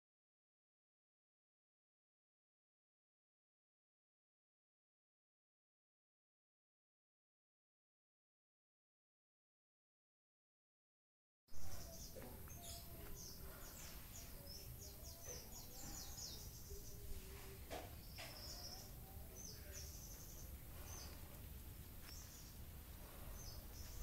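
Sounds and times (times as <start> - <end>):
outdoor background noise: 11.5 - 24.0
small birds chirping: 11.6 - 24.0.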